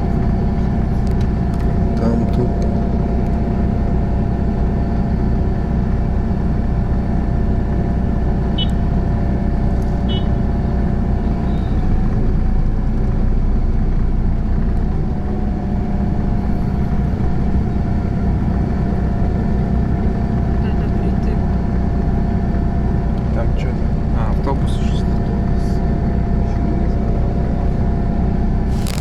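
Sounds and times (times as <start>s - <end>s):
vehicle engine humming: 0.0s - 29.0s.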